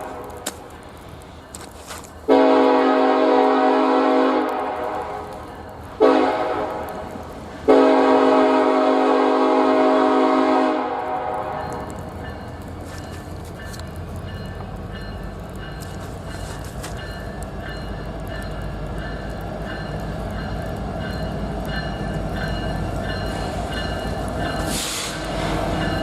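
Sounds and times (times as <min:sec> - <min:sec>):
locomotive air horn blasts: 0:02.3 - 0:05.3, 0:06.0 - 0:06.9, 0:07.7 - 0:11.8.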